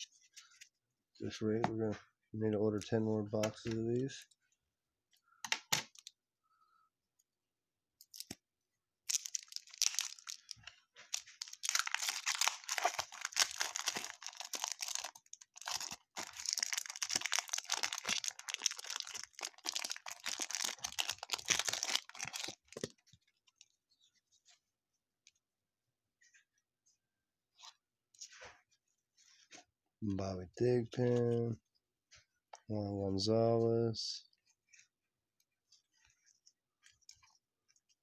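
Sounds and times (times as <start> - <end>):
wrapper tearing and crinkling: 9.0 - 22.9.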